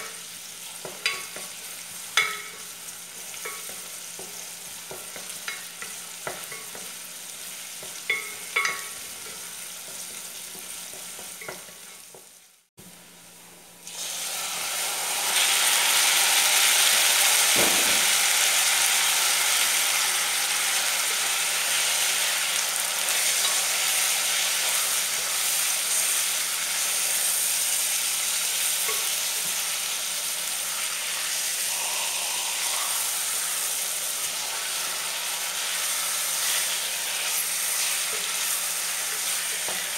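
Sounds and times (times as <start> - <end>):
chicken sizzling in hot oil: 0.0 - 12.7, 13.8 - 39.9
onion frying in a pot: 0.0 - 13.2, 13.8 - 39.9
knock: 17.6 - 18.1.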